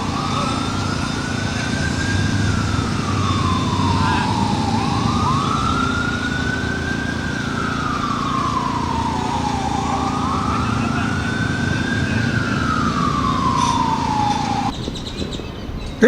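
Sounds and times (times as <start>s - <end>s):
emergency siren wailing: 0.0s - 16.0s
low engine rumble: 0.0s - 16.0s.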